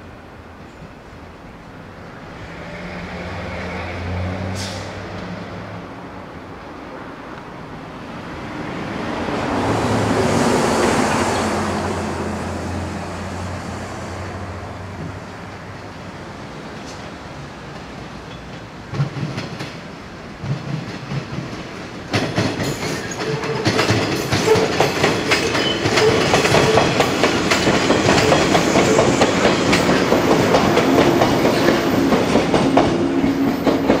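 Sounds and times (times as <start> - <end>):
train running hum: 0.0 - 34.0
train wheels clattering over joints: 17.7 - 34.0.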